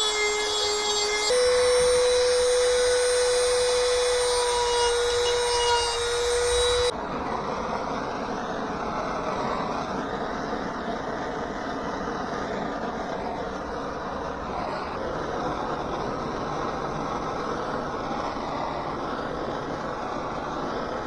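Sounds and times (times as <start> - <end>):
rotary tool whining: 0.0 - 6.9.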